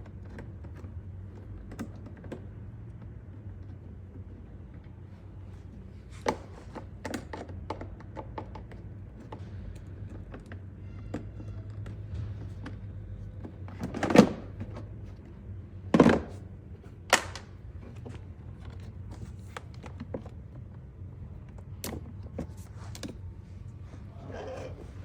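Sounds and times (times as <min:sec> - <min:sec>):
steady low hum: 0:09.0 - 0:25.0.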